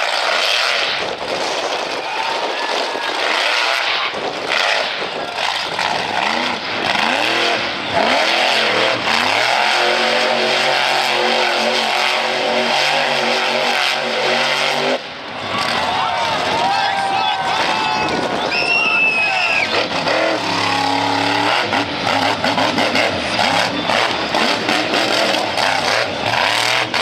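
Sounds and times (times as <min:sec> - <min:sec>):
monster truck engine revving: 0:00.0 - 0:27.0.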